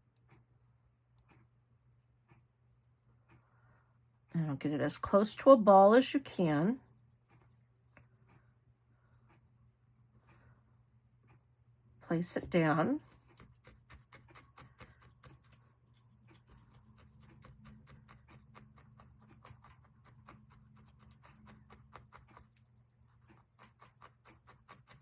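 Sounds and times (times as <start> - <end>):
felting needle poking into foam: 13.1 - 22.6, 23.2 - 25.0.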